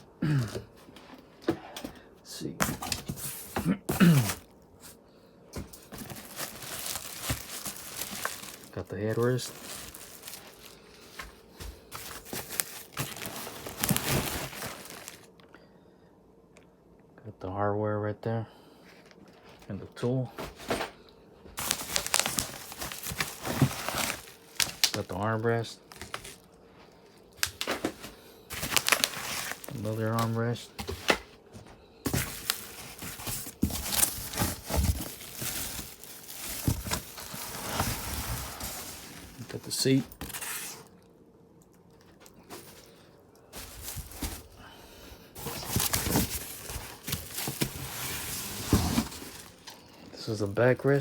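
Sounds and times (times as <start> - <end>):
packaging rustling and crinkling: 2.6 - 5.0, 5.6 - 15.3, 21.6 - 41.0, 42.0 - 51.0
parts thumping against cardboard box: 5.5 - 8.7, 21.6 - 25.0, 27.4 - 39.4, 43.6 - 44.6, 45.4 - 49.8.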